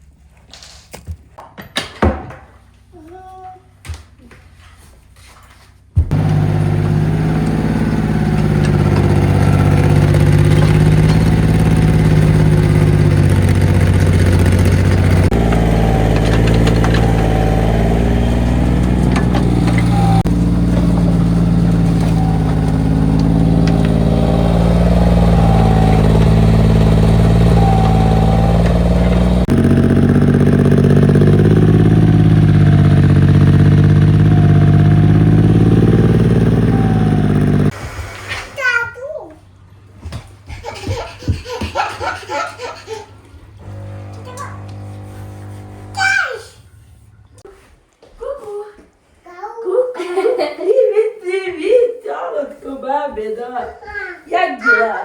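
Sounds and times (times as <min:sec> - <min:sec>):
diesel engine running under load: 0:06.1 - 0:37.8, 0:43.6 - 0:47.4
hydraulics whine: 0:06.1 - 0:37.8, 0:43.5 - 0:47.4.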